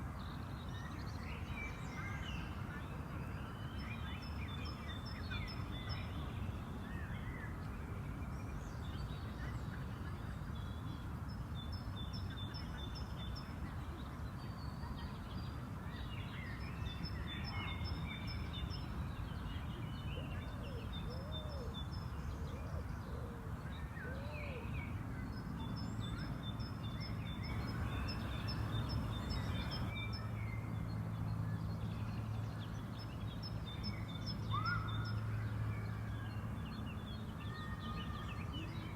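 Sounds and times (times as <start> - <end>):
birds singing and chirping: 25.6 - 30.3
low background rumble: 27.4 - 30.0
lower arched bird calls: 27.4 - 30.0
steady low hum: 27.5 - 30.0.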